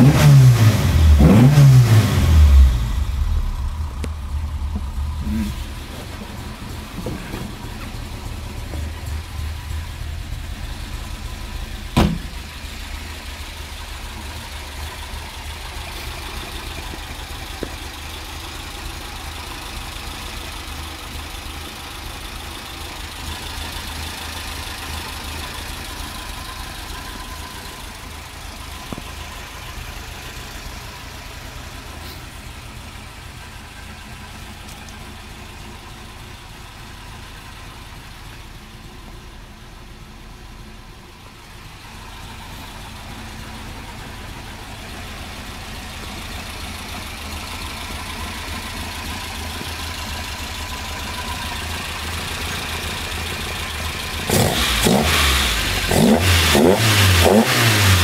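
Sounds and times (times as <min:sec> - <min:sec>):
car engine idling: 0:00.0 - 0:58.0
sharp knock: 0:12.0 - 0:12.4.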